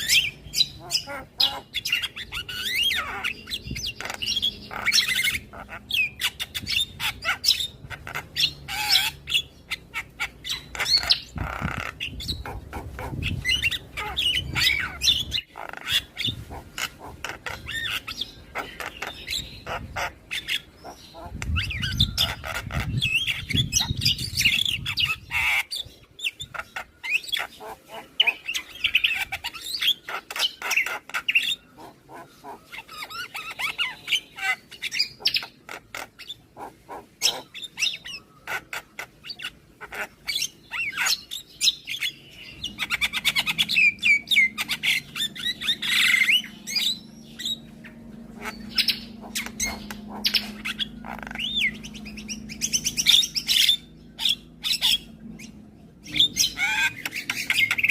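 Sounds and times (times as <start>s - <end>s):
birds chattering and squawking: 0.0s - 57.9s
low steady hum: 42.2s - 57.9s.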